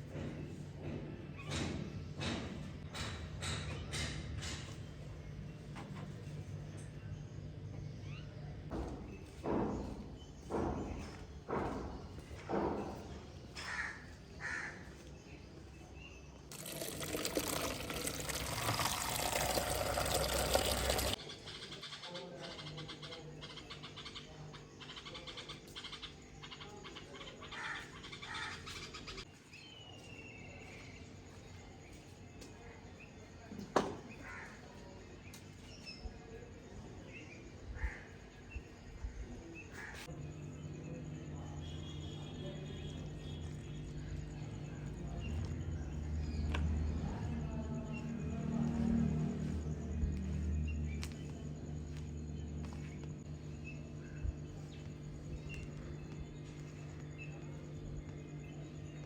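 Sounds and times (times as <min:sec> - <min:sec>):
liquid pouring: 0:16.5 - 0:21.2
steady low hum: 0:37.6 - 0:59.0.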